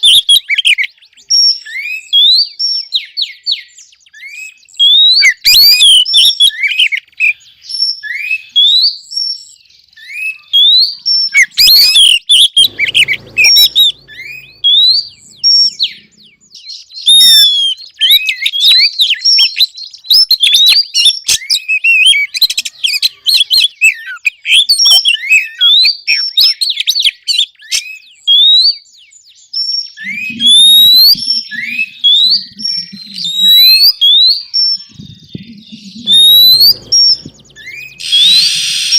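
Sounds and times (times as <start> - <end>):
bird whistling and chattering: 30.0 - 38.9.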